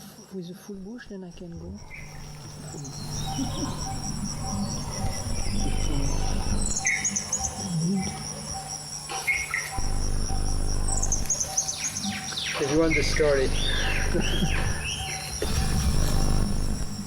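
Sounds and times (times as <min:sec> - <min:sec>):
crickets trilling: 0:00.0 - 0:17.0
low hum: 0:00.9 - 0:06.8, 0:09.8 - 0:11.4, 0:12.8 - 0:17.0
bird chirping: 0:01.8 - 0:07.7, 0:09.4 - 0:17.0.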